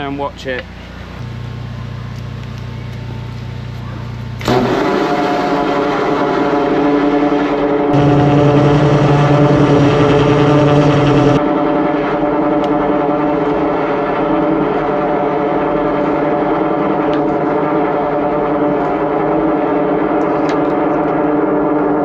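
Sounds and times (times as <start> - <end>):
drain jetter engine and pump running: 4.0 - 6.9, 8.0 - 11.4.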